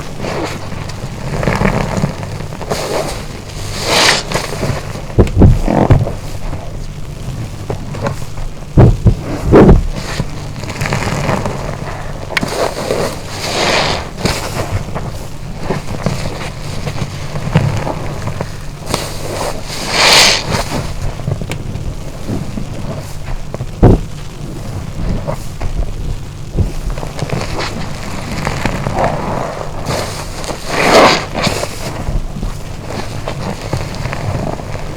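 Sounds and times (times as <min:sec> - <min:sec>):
sponge squelching: 0:00.0 - 0:34.9
heavy low thumps: 0:04.8 - 0:12.4, 0:21.0 - 0:29.8.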